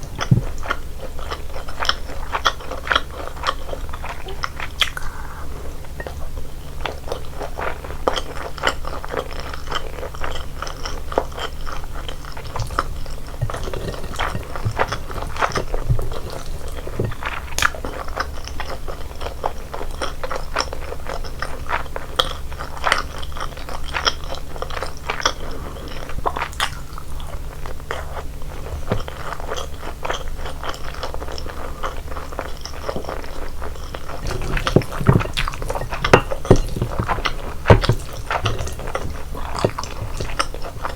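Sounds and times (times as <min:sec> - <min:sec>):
person chewing crunchy food: 0:09.8 - 0:18.7, 0:28.8 - 0:40.9.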